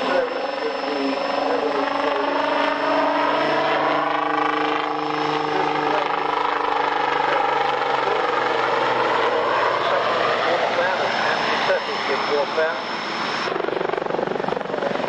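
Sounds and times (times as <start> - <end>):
aircraft engine droning: 0.0 - 15.0.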